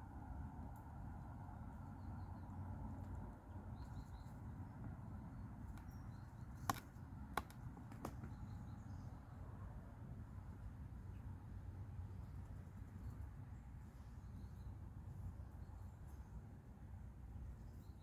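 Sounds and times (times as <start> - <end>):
faint bird chirps: 3.7 - 4.5.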